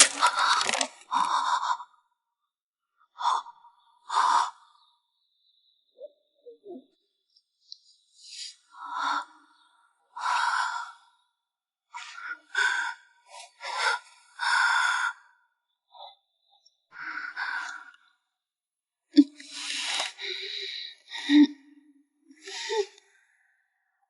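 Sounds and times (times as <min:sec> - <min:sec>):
person breathing hard: 0:00.0 - 0:02.2, 0:12.4 - 0:15.6, 0:19.2 - 0:23.6.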